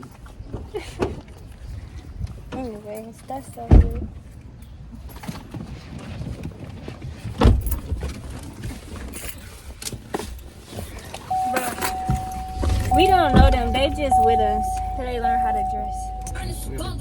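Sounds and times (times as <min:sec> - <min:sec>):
car low rumble: 0:10.3 - 0:17.0.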